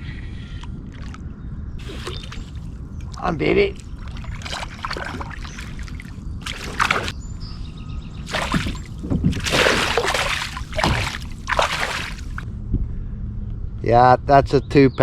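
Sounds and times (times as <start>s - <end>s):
fish splashing at the surface: 1.8s - 2.7s, 3.8s - 7.2s, 8.3s - 12.4s.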